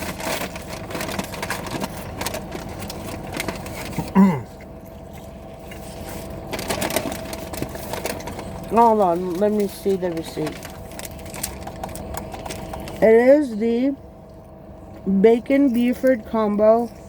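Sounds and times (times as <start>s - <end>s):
food wrappers rustling: 0.0s - 13.0s
faint steady hum: 0.0s - 17.0s.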